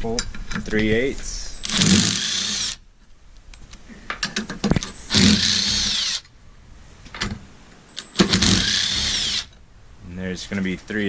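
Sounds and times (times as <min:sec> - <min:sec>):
power tool spinning bolts: 0:01.6 - 0:02.8, 0:05.1 - 0:06.3, 0:08.0 - 0:09.6.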